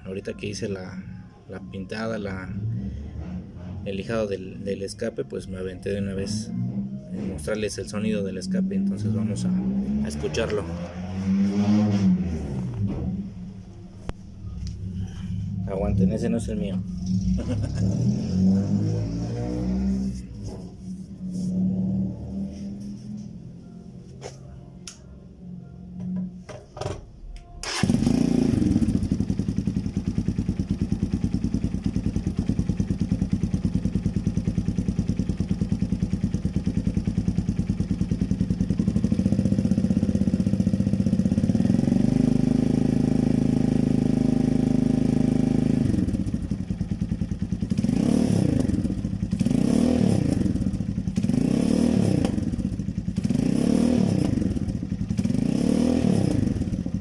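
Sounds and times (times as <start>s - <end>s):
motorcycle engine revving: 2.2s - 4.7s, 5.8s - 24.0s, 27.6s - 57.0s
motorcycle idling: 27.6s - 55.4s, 56.4s - 57.0s.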